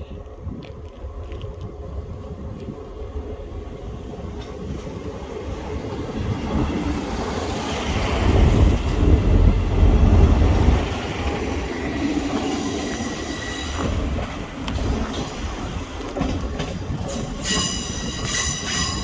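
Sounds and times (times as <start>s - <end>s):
train wheels rumbling on rail: 0.0s - 19.0s
high-pitched wheel squeal: 17.2s - 19.0s.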